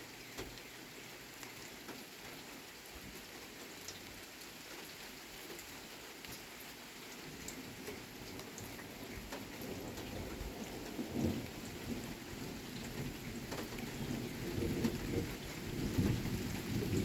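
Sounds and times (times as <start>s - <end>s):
steady rain falling: 0.0s - 17.0s
thunder rumbling: 8.5s - 17.0s.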